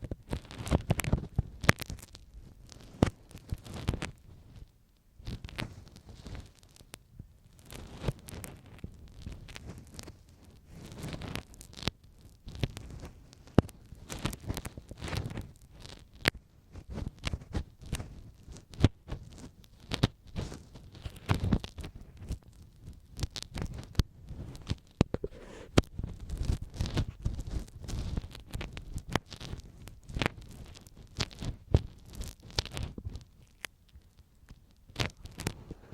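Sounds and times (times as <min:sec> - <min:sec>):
ear pick scraping: 0:24.4 - 0:33.7.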